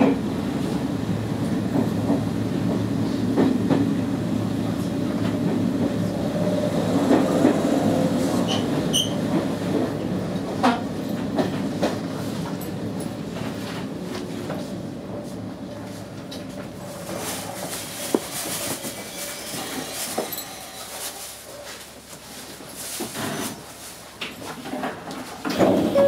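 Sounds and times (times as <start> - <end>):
train rail running noise: 0.0 - 26.0
high wheel squeaks: 8.3 - 9.3.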